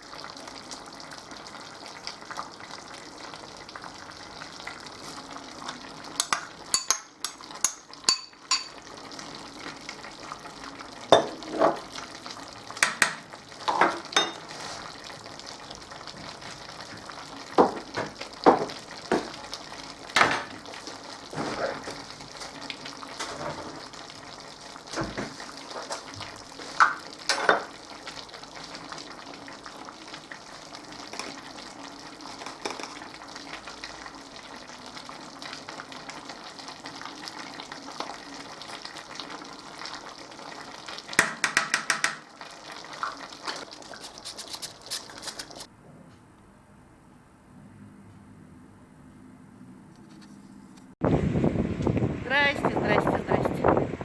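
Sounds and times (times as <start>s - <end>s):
food sizzling in a pan: 0.0s - 45.7s
utensil scraping a pan: 21.3s - 22.0s, 43.9s - 45.7s.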